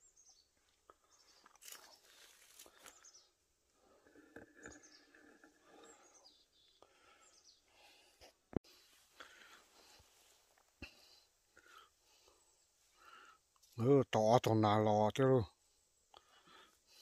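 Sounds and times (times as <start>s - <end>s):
soft crunching and rustling: 0.6s - 3.2s.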